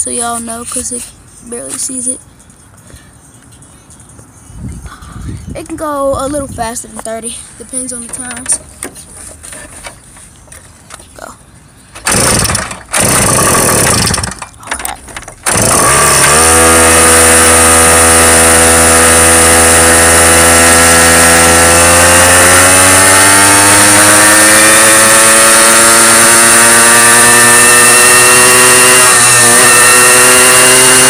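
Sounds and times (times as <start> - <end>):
motorcycle engine accelerating: 12.0 - 14.5, 15.4 - 31.0
rough uneven bursts of noise: 12.0 - 31.0.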